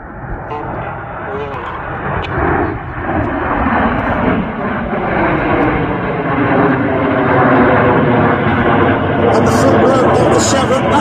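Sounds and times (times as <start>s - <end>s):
jets flying past: 0.0s - 11.0s.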